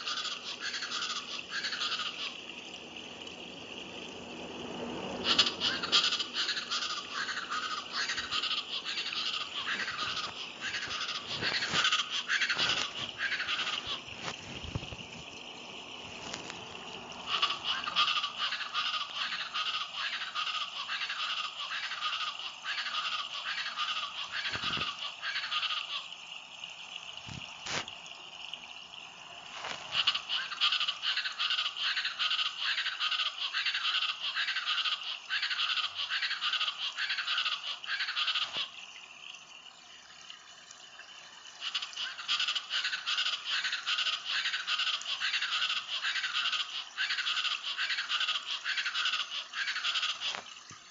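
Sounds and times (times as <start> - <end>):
birds calling in chorus: 0.0 - 26.0, 41.6 - 50.4.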